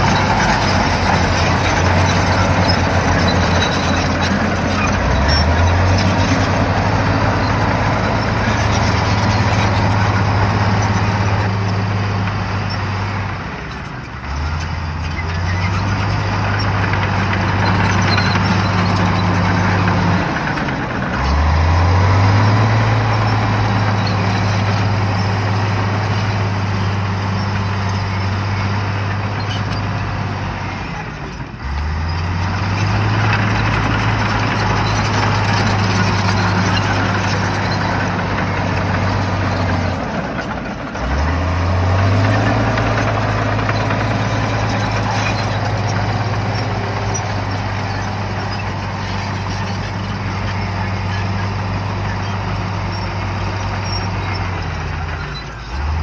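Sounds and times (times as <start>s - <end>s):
bulldozer diesel engine running hard: 0.0s - 56.0s.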